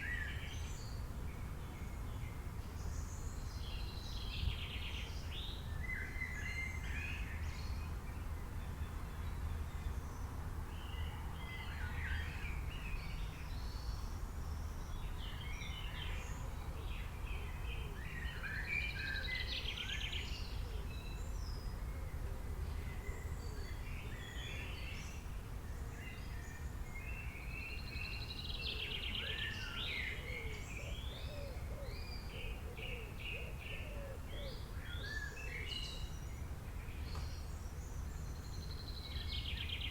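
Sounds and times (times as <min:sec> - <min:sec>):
songbirds chirping and singing: 0:22.8 - 0:39.9.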